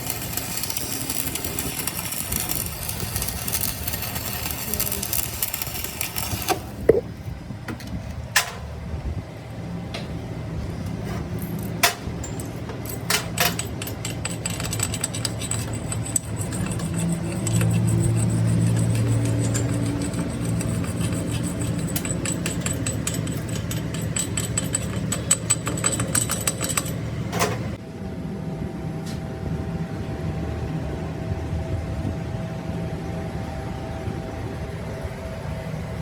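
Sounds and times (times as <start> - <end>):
workshop machinery humming: 0.0 - 36.0.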